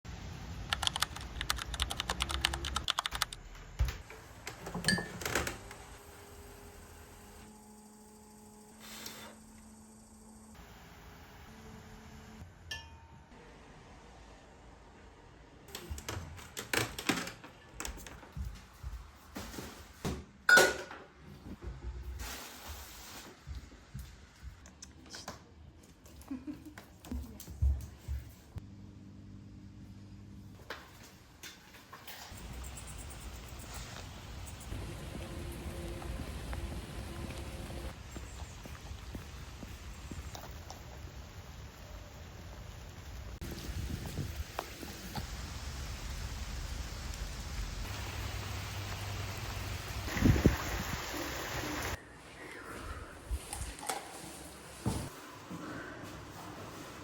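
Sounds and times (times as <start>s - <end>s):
ringing clink: 12.7s - 13.2s.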